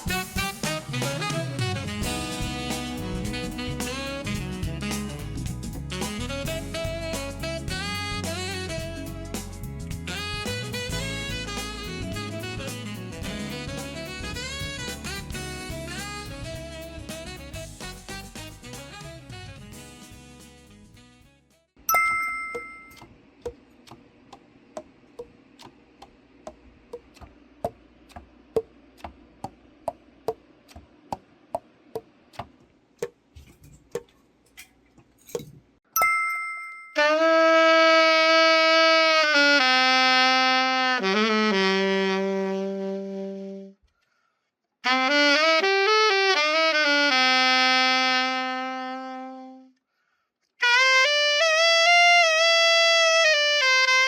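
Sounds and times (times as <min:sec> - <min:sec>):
alto saxophone playing: 0:00.0 - 0:21.3, 0:37.0 - 0:43.8, 0:44.8 - 0:49.8, 0:50.6 - 0:54.0
ringing two-tone chime: 0:21.9 - 0:23.0, 0:36.0 - 0:37.0.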